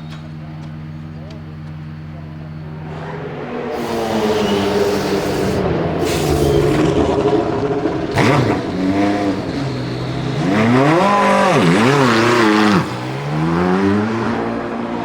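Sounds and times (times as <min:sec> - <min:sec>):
sharp exhaust crack: 0:00.0 - 0:14.4
race car engine accelerating: 0:00.0 - 0:15.0.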